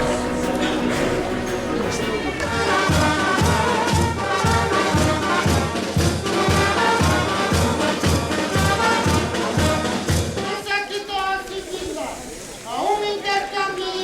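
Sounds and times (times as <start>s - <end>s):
bass drum beat: 0.0s - 10.4s
brass band playing: 0.0s - 10.8s.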